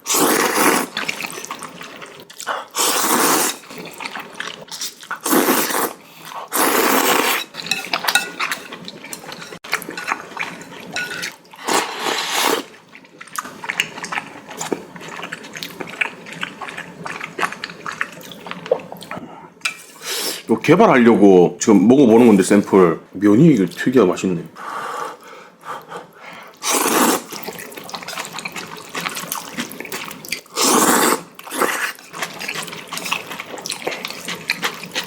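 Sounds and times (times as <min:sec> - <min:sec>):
person slurping noodles: 0:00.0 - 0:07.5, 0:11.6 - 0:12.8, 0:26.6 - 0:35.0
chewing: 0:07.2 - 0:19.2, 0:27.1 - 0:35.0.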